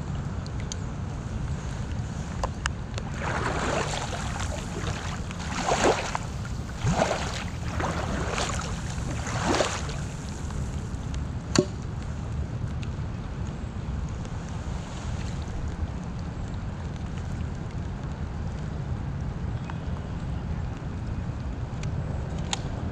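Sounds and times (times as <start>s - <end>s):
steady low rumble: 0.0s - 19.0s
paddle splashing through water: 3.0s - 11.1s.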